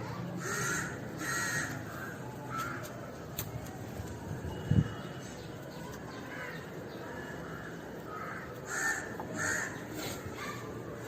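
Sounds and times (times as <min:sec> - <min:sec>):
low background noise: 0:00.0 - 0:11.0
crow cawing: 0:00.4 - 0:02.8, 0:06.3 - 0:09.8.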